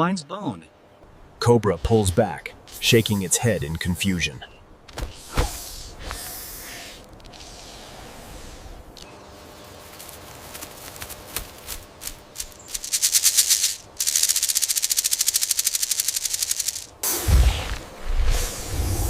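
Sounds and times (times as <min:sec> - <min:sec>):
porcupine rattling tail quills: 0:09.6 - 0:17.0.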